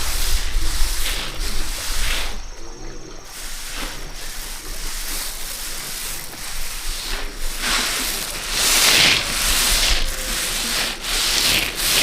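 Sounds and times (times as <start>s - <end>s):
swishing rubbing strokes: 3.3s - 12.0s.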